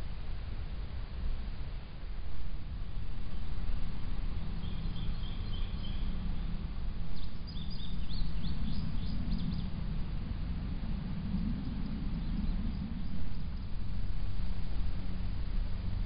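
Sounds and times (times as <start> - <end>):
steady low rumble: 0.0 - 16.0
small birds chirping: 4.5 - 9.8.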